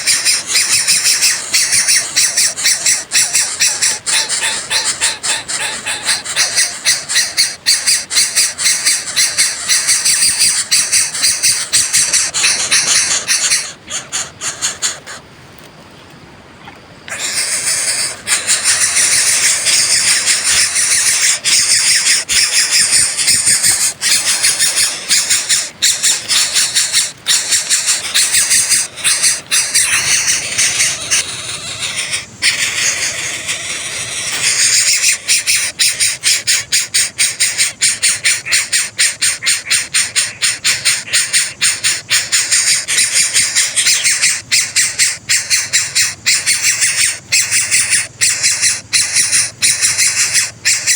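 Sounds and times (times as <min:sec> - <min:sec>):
nestlings begging calls: 0:00.0 - 0:15.2, 0:17.1 - 0:50.9.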